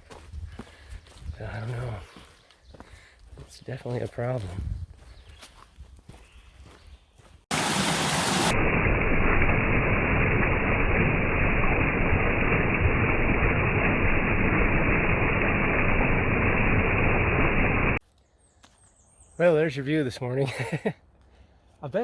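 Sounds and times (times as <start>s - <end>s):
stream rushing over rocks: 7.5s - 8.8s.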